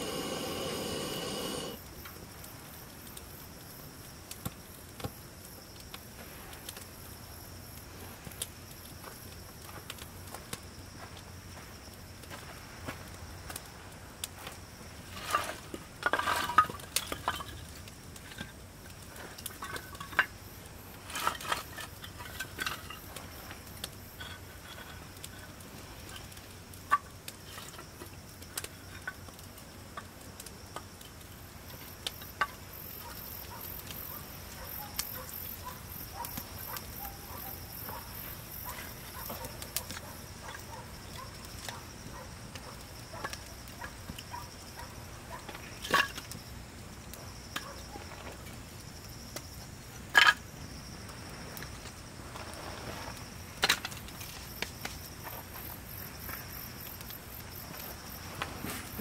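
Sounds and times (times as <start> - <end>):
clatter of small objects handled: 14.4 - 20.4, 21.0 - 29.4, 45.4 - 46.5.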